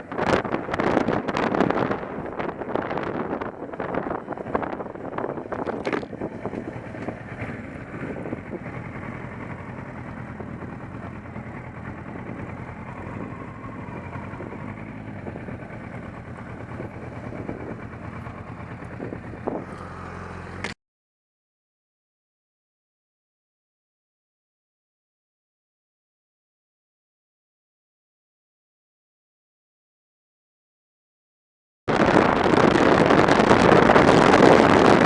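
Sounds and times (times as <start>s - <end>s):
motorcycle engine running: 0.0s - 20.8s, 31.9s - 35.0s
wind and road noise: 0.0s - 20.8s, 31.9s - 35.0s.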